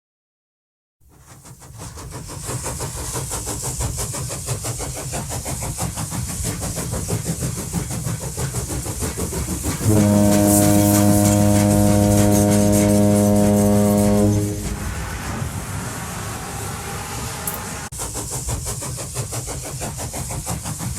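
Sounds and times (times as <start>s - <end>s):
steam locomotive chuffing: 1.0s - 20.9s
steam whistle blast: 9.8s - 17.9s.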